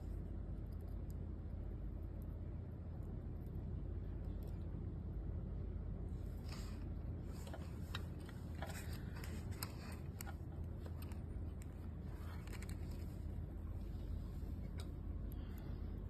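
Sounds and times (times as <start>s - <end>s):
steady low hum: 0.0s - 16.0s
small parts clicking and tapping: 7.4s - 13.3s.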